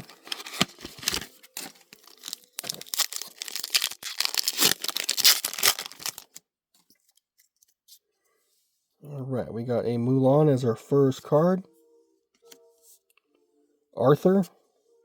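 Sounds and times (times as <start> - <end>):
foil pack tearing and crinkling: 0.0 - 6.4.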